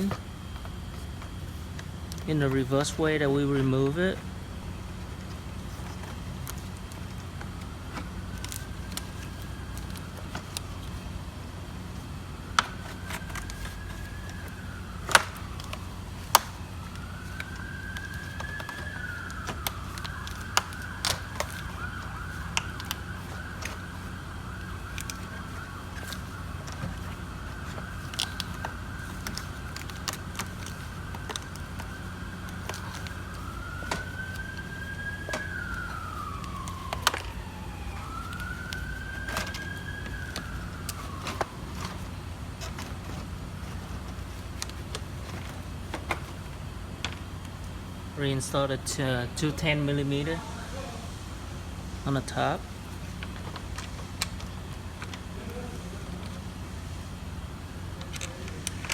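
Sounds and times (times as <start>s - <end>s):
siren wailing: 0.0s - 58.9s
steady low hum: 0.0s - 58.9s
clicks and knocks of parts handled: 5.0s - 11.1s, 12.5s - 47.6s, 53.0s - 55.3s, 57.9s - 58.9s.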